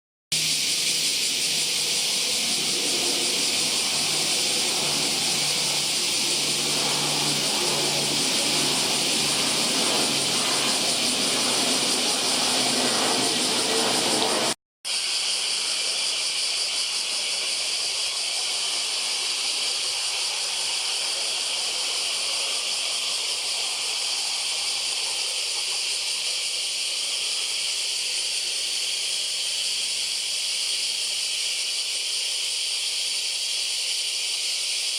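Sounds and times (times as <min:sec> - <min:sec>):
high-pitched hiss: 0:00.3 - 0:34.9
distant jet engine hum: 0:00.4 - 0:14.6.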